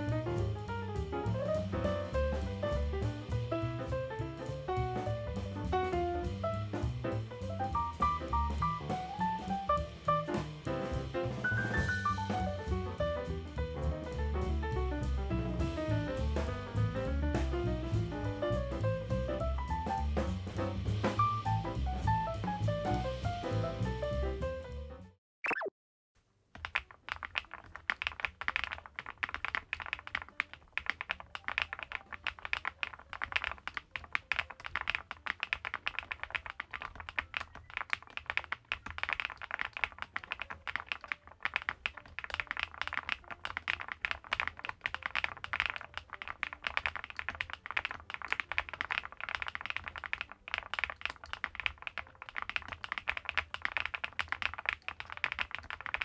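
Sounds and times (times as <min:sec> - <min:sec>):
fast typing on mechanical keyboard: 0:26.6 - 0:56.0.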